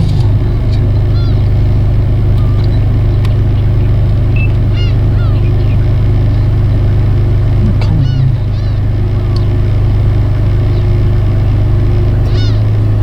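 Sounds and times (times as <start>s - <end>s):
gulls calling: 0.0s - 13.0s
low engine drone: 0.0s - 13.0s.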